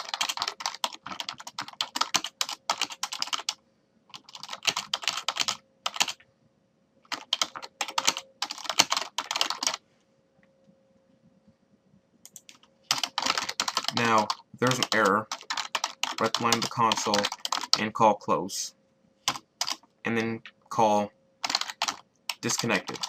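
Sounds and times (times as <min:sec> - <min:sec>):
fast typing on keyboard: 0:00.0 - 0:06.2, 0:07.1 - 0:09.8, 0:12.3 - 0:17.9, 0:19.3 - 0:19.9, 0:21.4 - 0:23.0.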